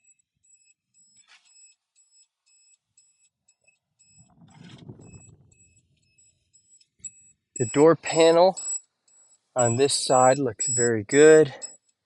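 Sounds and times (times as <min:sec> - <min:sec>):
high-pitched electronic beeping: 0:07.0 - 0:08.8, 0:09.6 - 0:11.7.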